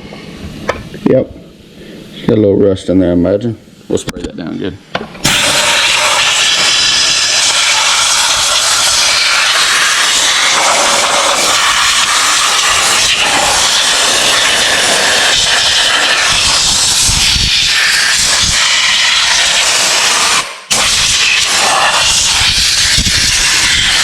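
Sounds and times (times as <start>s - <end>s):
spray hissing: 5.2s - 24.0s.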